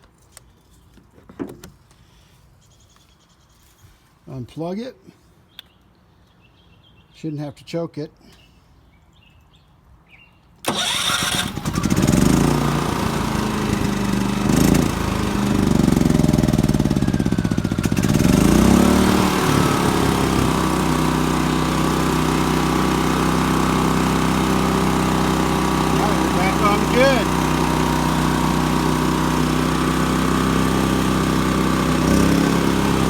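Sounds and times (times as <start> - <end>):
generator engine running: 10.7 - 33.0.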